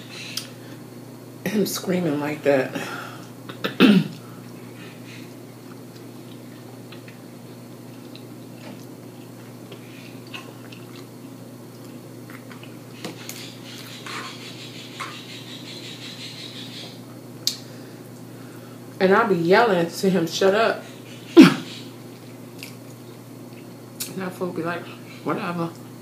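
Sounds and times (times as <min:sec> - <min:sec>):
person chewing with mouth clicks: 0:07.8 - 0:14.4, 0:22.1 - 0:24.1.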